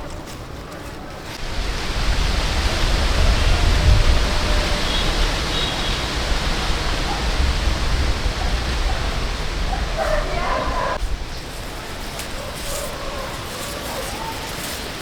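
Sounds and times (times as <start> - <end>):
rushing noise with low rumble: 1.4 - 11.2.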